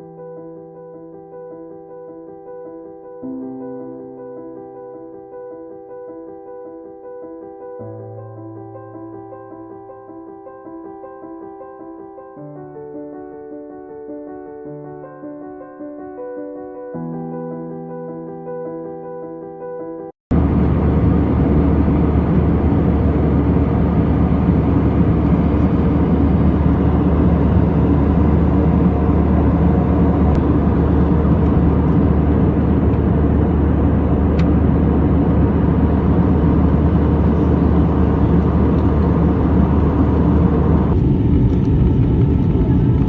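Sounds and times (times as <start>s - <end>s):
airliner cabin engine rumble: 20.3s - 43.0s.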